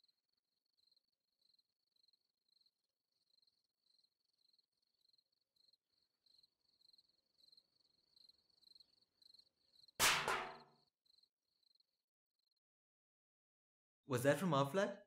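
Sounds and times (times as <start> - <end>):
crickets chirping: 0.0 - 10.0, 10.8 - 12.6
loud crash with ringing: 10.0 - 10.7.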